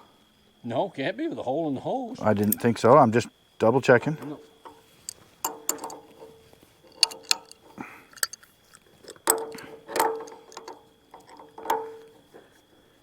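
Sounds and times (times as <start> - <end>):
hand tools clinking on metal: 2.2 - 2.8, 4.2 - 12.4
sharp ringing metal clanks: 4.2 - 8.5, 9.1 - 12.2.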